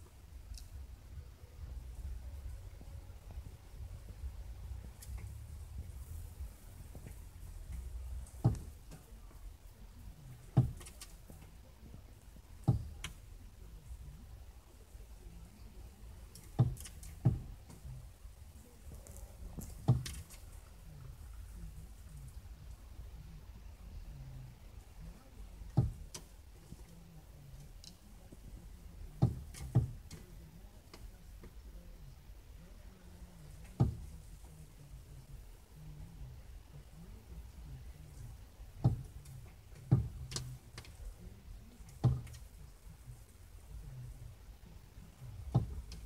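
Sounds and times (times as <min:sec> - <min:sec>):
bird thumping against car window: 0:04.8 - 0:09.0, 0:10.3 - 0:11.5, 0:16.4 - 0:17.9, 0:19.0 - 0:20.5, 0:29.2 - 0:30.2, 0:38.8 - 0:41.0, 0:41.8 - 0:42.6, 0:45.3 - 0:46.0
bird knocking on car window: 0:12.6 - 0:13.1, 0:25.7 - 0:26.2, 0:38.8 - 0:39.1, 0:42.0 - 0:42.4, 0:45.5 - 0:46.0.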